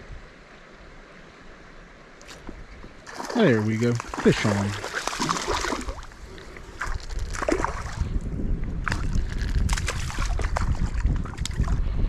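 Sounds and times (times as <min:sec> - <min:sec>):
water splashing: 0:02.2 - 0:08.1, 0:08.8 - 0:11.8
wind buffeting microphone: 0:02.4 - 0:12.0.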